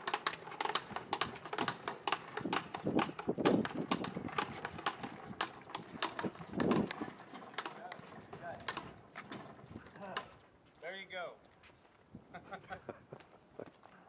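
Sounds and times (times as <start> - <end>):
sharp clicks and knocks: 0.0 - 10.3.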